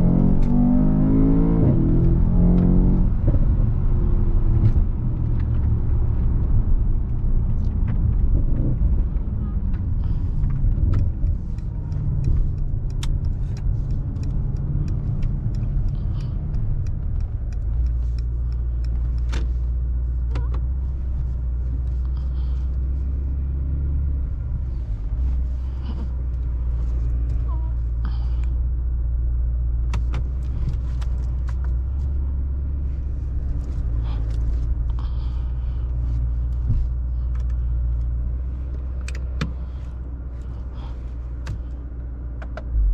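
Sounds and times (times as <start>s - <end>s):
car engine low drone: 0.0s - 42.9s
sharp clicks: 10.5s - 20.7s.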